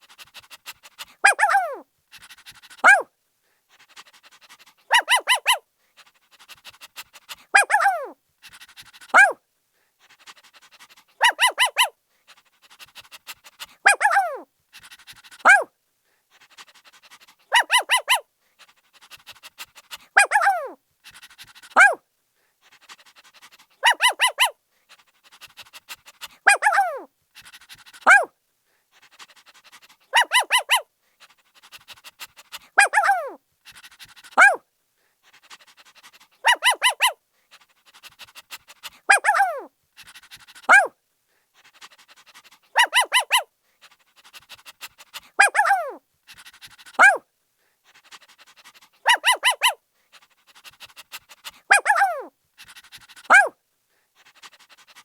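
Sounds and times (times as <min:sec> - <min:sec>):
faint panting: 0:00.0 - 0:55.0
puppy barking and yelping: 0:00.2 - 0:03.1, 0:04.2 - 0:05.6, 0:06.4 - 0:09.4, 0:11.0 - 0:12.0, 0:12.7 - 0:15.7, 0:16.5 - 0:18.3, 0:19.0 - 0:22.0, 0:22.9 - 0:24.6, 0:25.3 - 0:28.3, 0:29.2 - 0:30.9, 0:31.6 - 0:34.6, 0:35.5 - 0:37.2, 0:38.0 - 0:41.0, 0:41.8 - 0:47.2, 0:48.1 - 0:49.8, 0:50.6 - 0:53.6.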